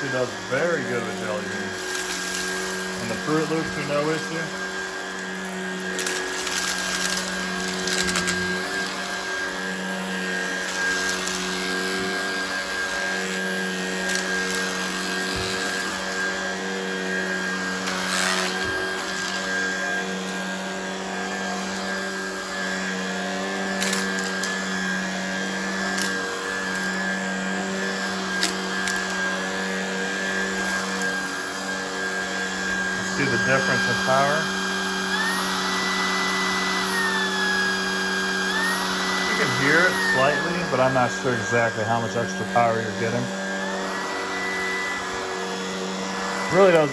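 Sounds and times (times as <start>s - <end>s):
vacuum cleaner motor humming: 0.0s - 46.9s.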